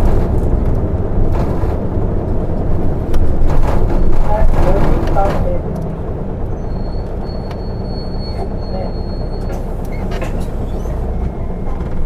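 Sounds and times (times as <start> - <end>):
diesel engine rumble: 0.0 - 12.0.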